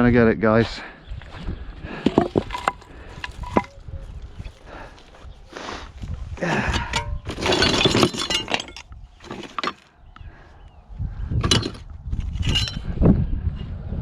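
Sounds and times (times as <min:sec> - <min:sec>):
rattling clatter: 0:02.0 - 0:03.7, 0:06.5 - 0:09.9, 0:11.4 - 0:13.0
stone and tools clinking: 0:02.0 - 0:03.8.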